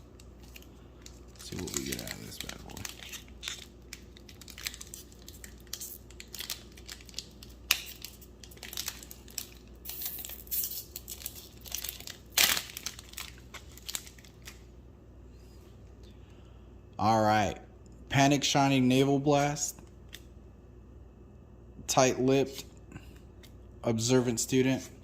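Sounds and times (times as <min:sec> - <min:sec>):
plastic wrapping crinkling: 0:00.0 - 0:14.7.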